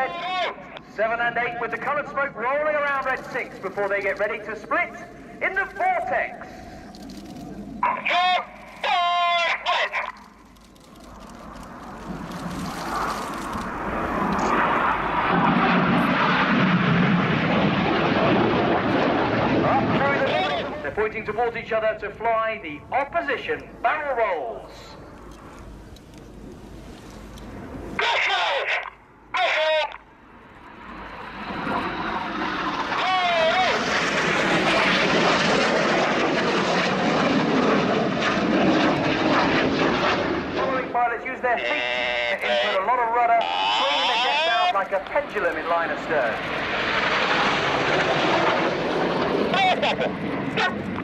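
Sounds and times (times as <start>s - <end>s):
jets flying past: 9.7s - 28.3s, 30.1s - 51.0s.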